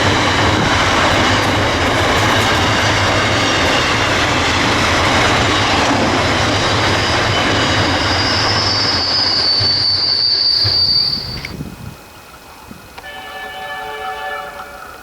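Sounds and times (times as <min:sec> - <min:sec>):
freight train rolling past: 0:00.0 - 0:15.0
high wheel squeal: 0:02.4 - 0:11.6.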